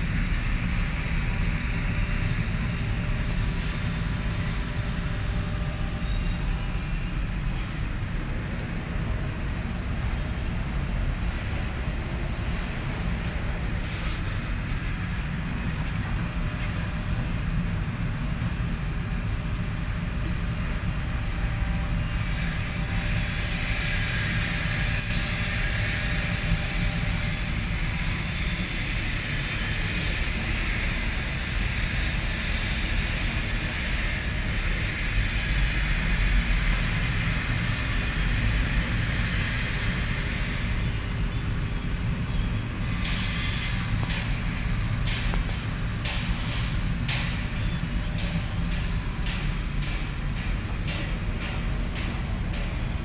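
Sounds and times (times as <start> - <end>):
loud hiss: 22.0 - 53.0.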